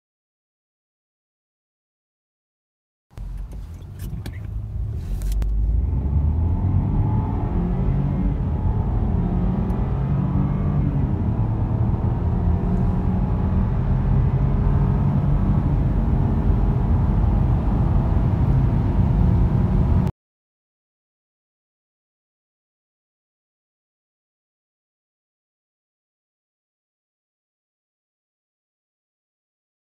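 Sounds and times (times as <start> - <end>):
car engine accelerating: 3.1 - 20.1.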